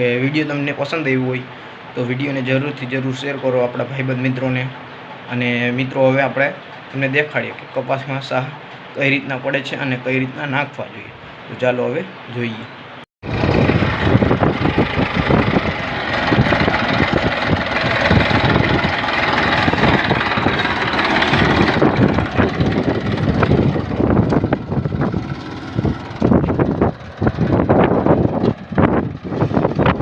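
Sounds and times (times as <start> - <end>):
tractor engine running: 13.2 - 30.0
wind buffeting microphone: 13.2 - 30.0.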